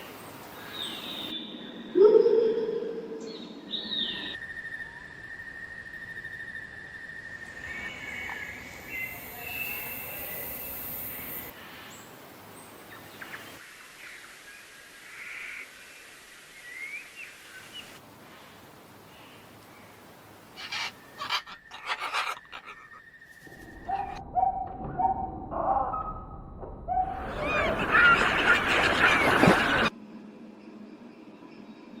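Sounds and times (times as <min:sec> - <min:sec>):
bird calls and chirps: 0:20.6 - 0:25.2.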